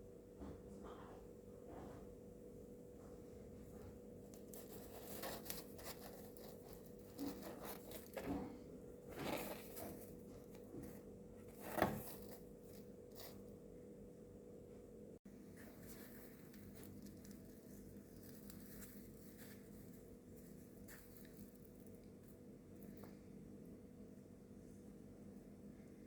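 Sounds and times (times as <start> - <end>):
faint steady hum: 0.0 - 26.0
dumplings rustling and crackling: 3.2 - 13.7, 15.4 - 23.1.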